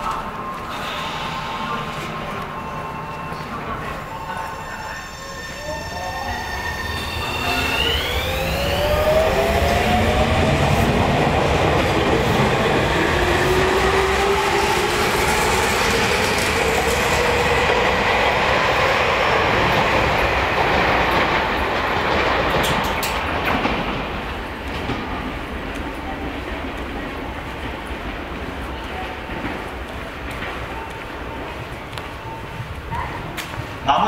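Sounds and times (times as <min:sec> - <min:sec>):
electric train motor whine: 0:00.6 - 0:10.6.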